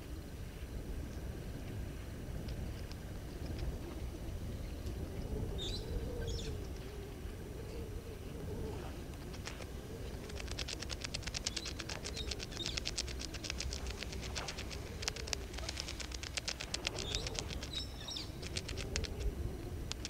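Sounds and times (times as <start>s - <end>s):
faint wavering low bird call: 3.7s - 10.8s
fast rattle of clicks: 9.2s - 20.0s.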